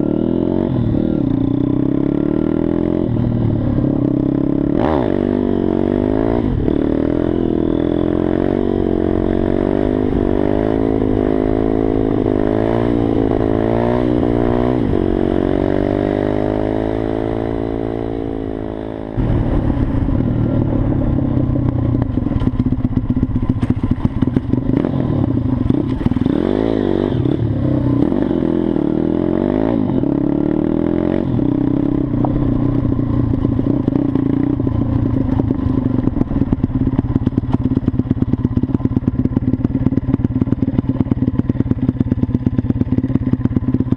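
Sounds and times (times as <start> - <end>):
motorcycle engine revving: 0.0 - 43.9
engine rattling: 17.8 - 43.9.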